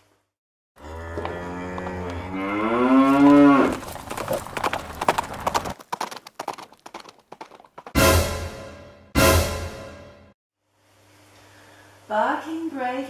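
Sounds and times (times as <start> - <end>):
bull bellowing: 0.8 - 5.7.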